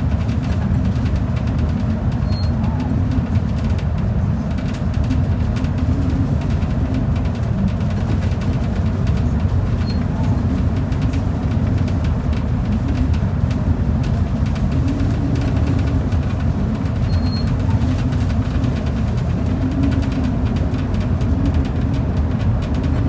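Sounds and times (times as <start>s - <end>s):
bus engine and tyre rumble: 0.0s - 23.0s.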